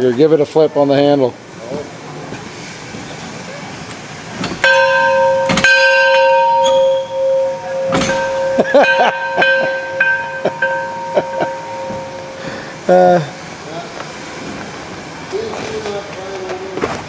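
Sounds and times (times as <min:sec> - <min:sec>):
steamboat bell ringing: 0:04.6 - 0:13.6.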